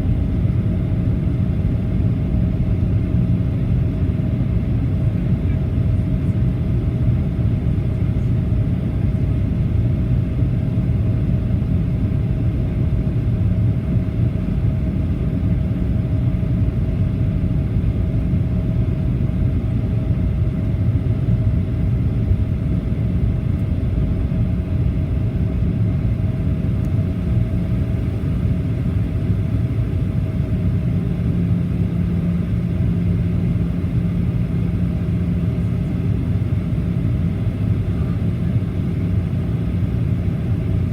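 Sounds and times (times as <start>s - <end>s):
faint hum: 0.0s - 40.9s
jet engine rumble and airflow: 0.0s - 40.9s.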